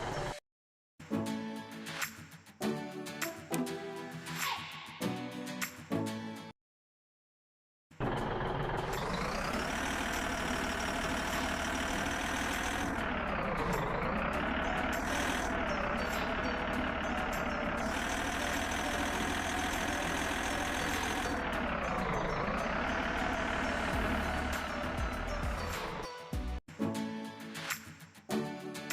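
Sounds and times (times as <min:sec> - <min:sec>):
truck engine running: 0:00.0 - 0:00.4, 0:08.0 - 0:26.1.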